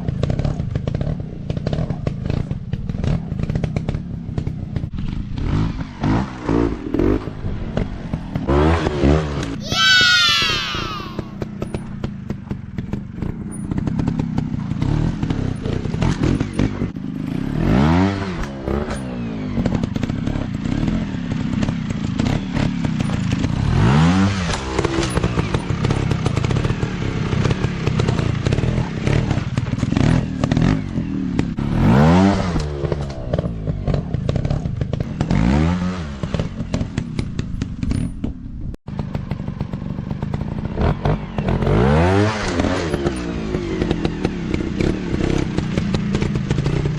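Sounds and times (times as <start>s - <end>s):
dirt bike engine revving: 13.8s - 37.2s, 40.6s - 46.9s.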